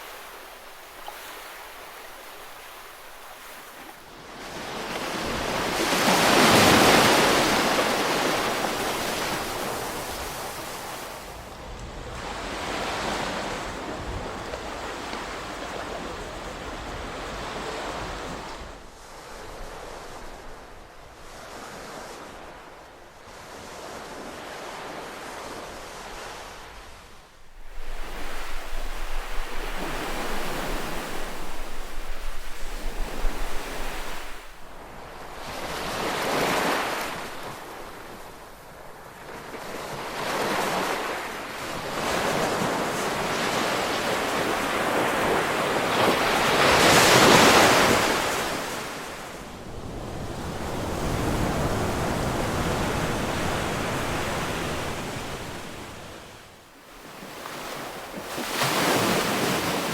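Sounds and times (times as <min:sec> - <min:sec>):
ocean waves breaking: 0:00.0 - 0:59.9
low wind rumble on microphone: 0:26.8 - 0:36.0.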